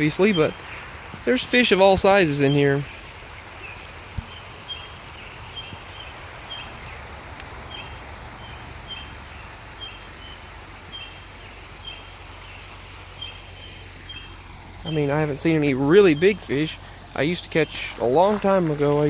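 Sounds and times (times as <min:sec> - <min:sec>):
bird chirping: 0:00.0 - 0:18.5
moving water hiss: 0:00.0 - 0:19.0.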